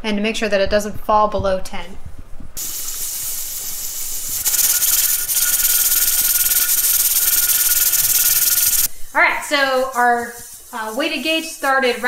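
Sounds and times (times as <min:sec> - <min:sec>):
steam hissing and sputtering: 0:02.6 - 0:11.8.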